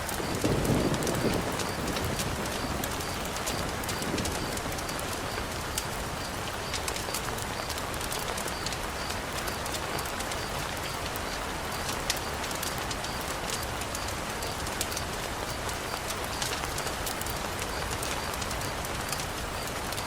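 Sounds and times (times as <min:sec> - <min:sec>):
rain on wooden balcony: 0:00.0 - 0:20.0.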